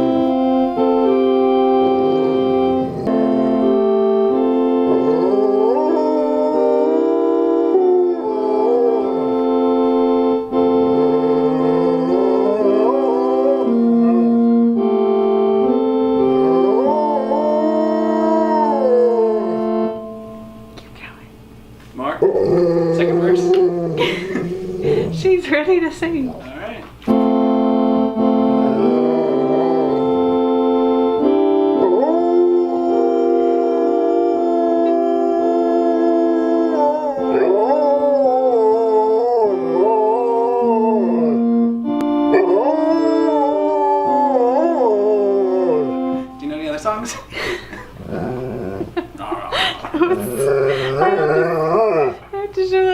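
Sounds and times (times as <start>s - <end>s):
organ playing a hymn: 0.0s - 20.8s, 26.6s - 48.0s
dog howling: 4.8s - 9.5s, 11.0s - 14.4s, 16.4s - 20.0s, 22.2s - 25.4s, 28.7s - 30.2s, 31.8s - 41.6s, 42.3s - 46.1s, 48.0s - 49.0s, 50.0s - 52.4s.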